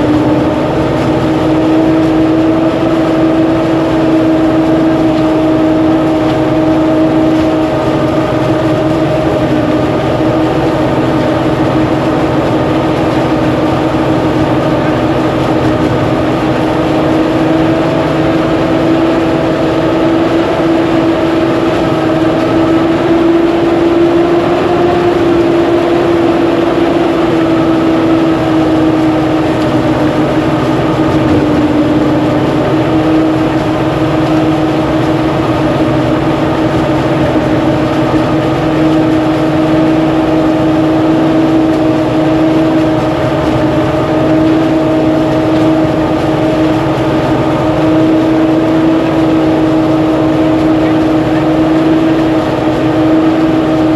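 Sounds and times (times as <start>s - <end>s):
threshing machine humming: 0.0s - 53.9s.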